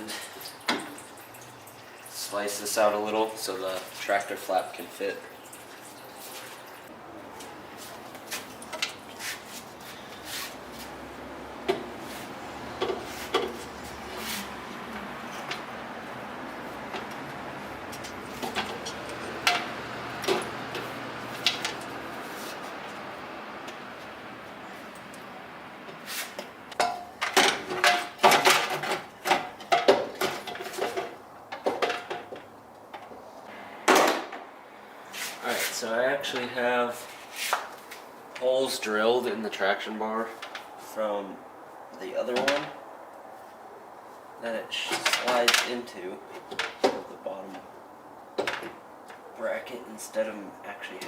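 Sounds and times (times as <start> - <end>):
metal clanking and scraping: 17.9 - 22.7.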